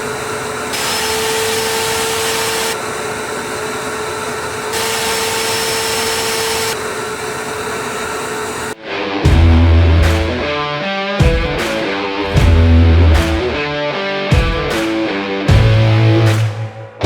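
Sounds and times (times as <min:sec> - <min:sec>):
shop vacuum whining: 0:00.0 - 0:08.8.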